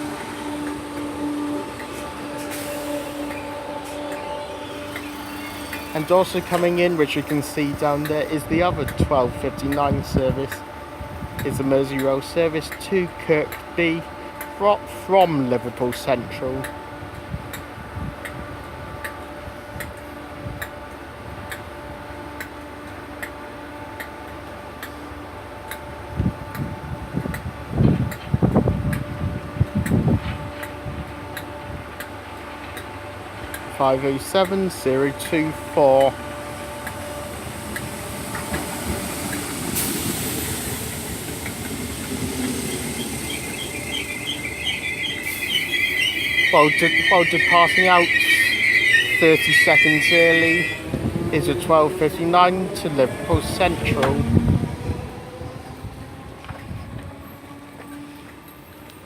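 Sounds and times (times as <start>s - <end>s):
electric train running: 0.0s - 59.0s
sharp ticking: 40.1s - 50.8s.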